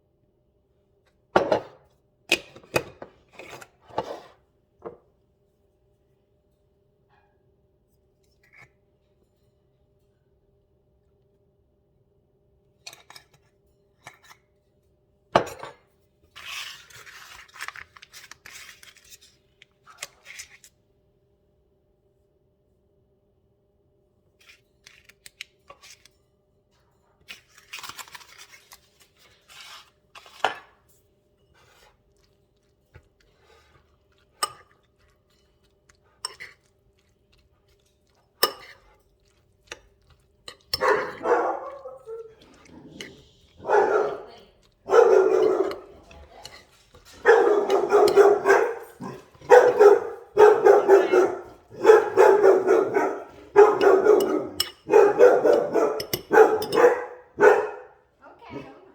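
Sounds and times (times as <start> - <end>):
dog barking: 40.8 - 42.3, 43.6 - 46.0, 47.2 - 58.0.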